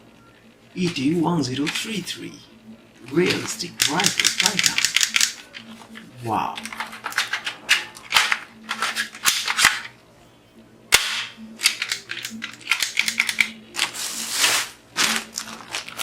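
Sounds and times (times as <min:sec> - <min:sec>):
plastic toy parts clicking and snapping: 0:03.2 - 0:09.9, 0:11.0 - 0:14.0
rustling: 0:13.7 - 0:16.0.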